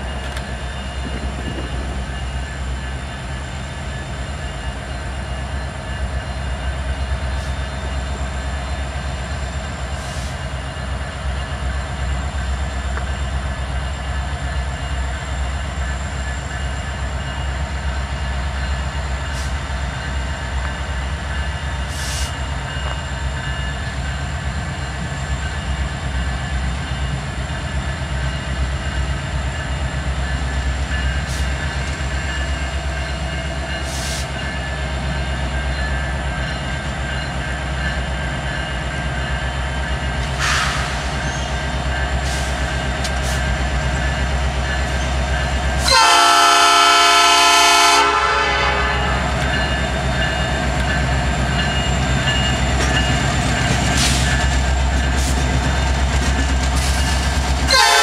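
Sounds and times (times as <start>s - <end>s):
diesel locomotive engine rumble: 0.0s - 58.0s
rail noise: 0.0s - 58.0s
train horn chord: 45.8s - 49.4s, 57.7s - 58.0s.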